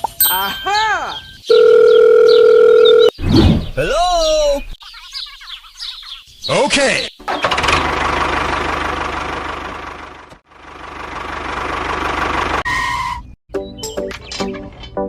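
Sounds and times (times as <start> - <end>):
engine chugging: 7.3 - 12.8
music: 13.5 - 15.0.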